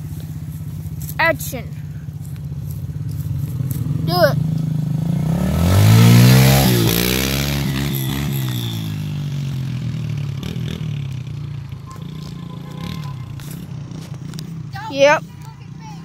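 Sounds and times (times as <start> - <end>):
dirt bike engine revving: 3.3 - 15.2.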